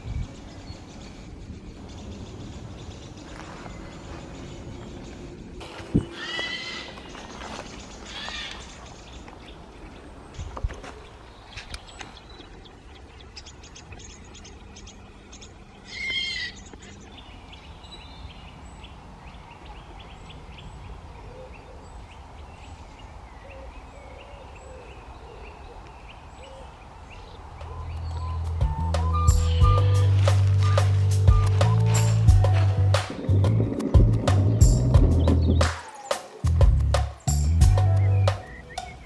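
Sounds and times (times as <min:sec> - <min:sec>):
woodland birds chirping: 0:00.0 - 0:39.0
harsh bird call: 0:06.0 - 0:07.1, 0:27.6 - 0:32.6
low cooing notes: 0:27.6 - 0:35.4
music: 0:27.9 - 0:39.0.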